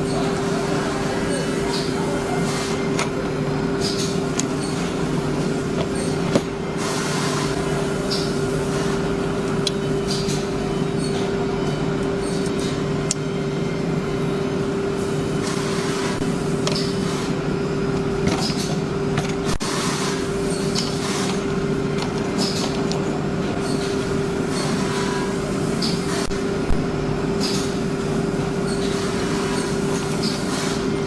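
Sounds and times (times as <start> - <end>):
woodworking machinery humming: 0.0 - 31.0.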